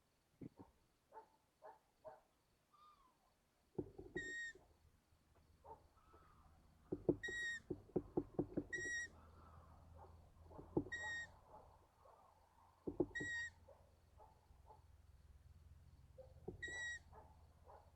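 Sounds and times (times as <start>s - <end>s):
owl chicks squeaky calls: 4.1s - 4.6s, 7.1s - 7.7s, 8.7s - 9.2s, 10.8s - 11.3s, 13.0s - 13.6s, 16.5s - 17.2s.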